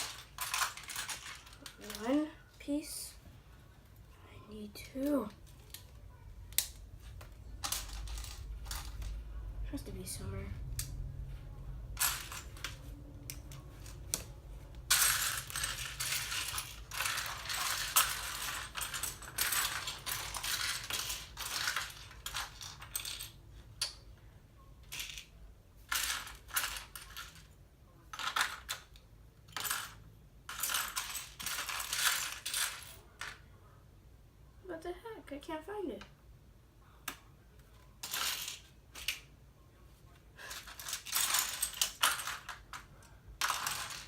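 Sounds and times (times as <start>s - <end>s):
plastic pieces clattering: 0.0s - 2.3s, 7.5s - 9.2s, 12.0s - 24.0s, 24.8s - 33.4s, 38.0s - 39.3s, 40.4s - 44.0s.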